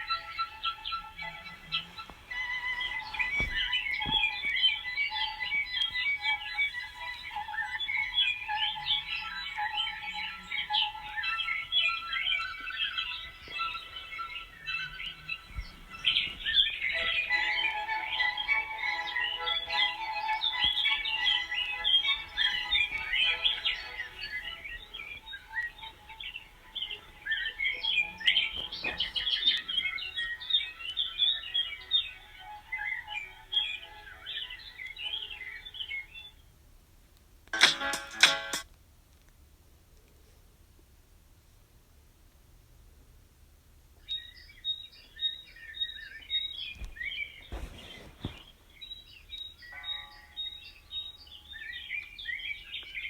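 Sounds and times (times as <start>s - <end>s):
small birds chirping and twittering: 0.0s - 36.6s, 44.0s - 53.0s
short rustle: 1.3s - 4.7s, 13.5s - 17.6s, 20.6s - 26.1s, 28.4s - 29.8s, 46.7s - 49.4s.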